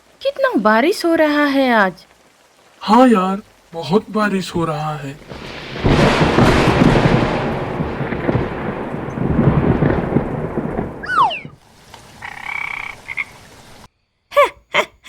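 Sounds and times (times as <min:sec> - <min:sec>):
cartoon rain: 0:00.0 - 0:15.0
rolling thunder: 0:05.0 - 0:13.0
falling whistle-like glide: 0:11.0 - 0:11.6
frog croak: 0:11.0 - 0:11.6, 0:12.2 - 0:13.5.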